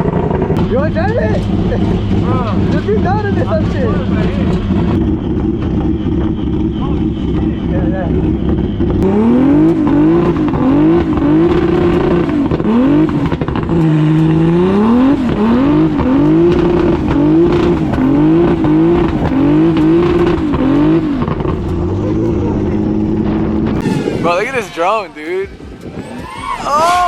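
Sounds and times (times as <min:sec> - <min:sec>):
car engine revving hard: 0:00.0 - 0:27.0.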